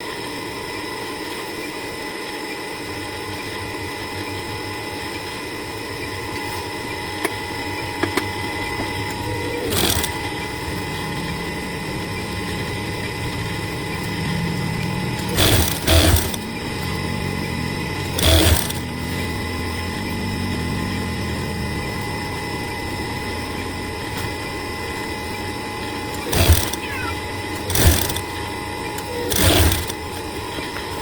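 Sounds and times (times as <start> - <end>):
sharp clicks: 8.0 - 20.2, 26.1 - 30.8
sewing machine stitching: 8.6 - 21.6, 25.8 - 31.0.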